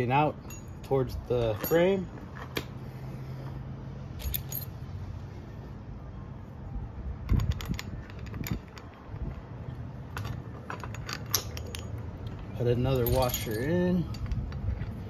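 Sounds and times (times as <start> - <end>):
metal washers clinking on rod: 0.4 - 2.6, 4.2 - 4.8, 10.1 - 14.6.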